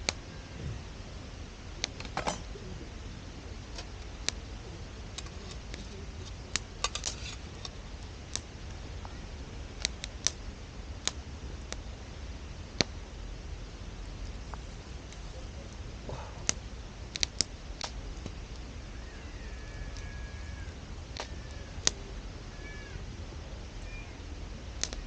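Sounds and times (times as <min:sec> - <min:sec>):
campfire crackling and popping: 0:03.4 - 0:18.9, 0:20.9 - 0:22.2, 0:24.7 - 0:25.0.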